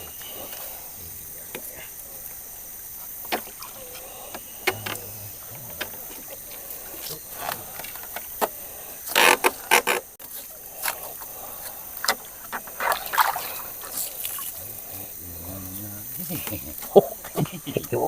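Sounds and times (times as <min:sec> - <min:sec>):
splashes in shallow water: 0:12.0 - 0:14.7.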